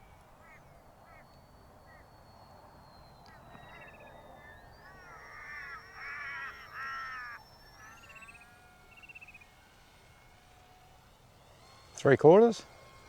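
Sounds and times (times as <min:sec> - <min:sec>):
electric motor whine: 0:00.0 - 0:13.0
crow cawing: 0:00.4 - 0:01.3, 0:03.3 - 0:08.7
small bird trilling: 0:00.4 - 0:09.9.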